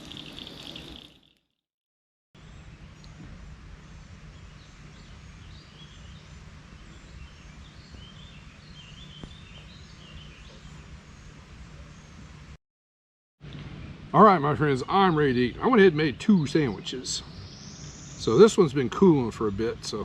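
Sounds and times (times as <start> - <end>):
small birds chirping: 2.4 - 12.3, 13.5 - 20.0
low outdoor rumble: 13.4 - 17.6.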